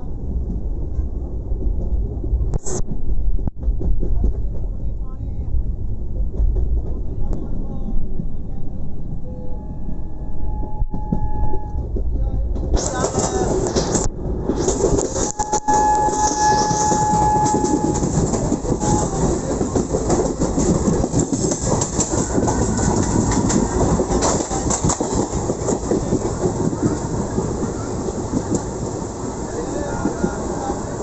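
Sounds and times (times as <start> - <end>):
train wheels clattering on rails: 2.8 - 5.2, 5.9 - 8.3, 10.9 - 31.0.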